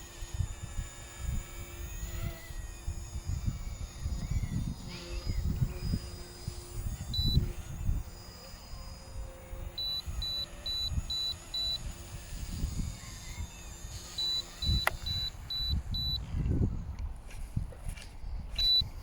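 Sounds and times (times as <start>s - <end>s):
wind buffeting microphone: 0.3s - 19.0s
short high electronic beeps: 9.8s - 11.8s, 14.2s - 16.2s
sharp click: 14.2s - 15.8s.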